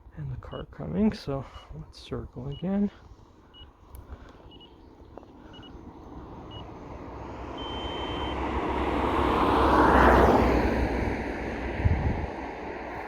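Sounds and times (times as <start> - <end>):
vehicle passing by: 4.5 - 13.0
short high beeps: 7.6 - 8.4.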